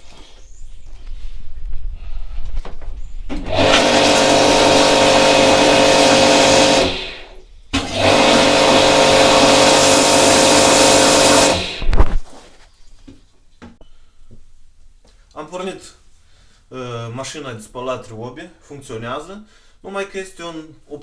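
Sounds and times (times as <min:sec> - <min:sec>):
pressure washer motor running: 0:03.3 - 0:11.8.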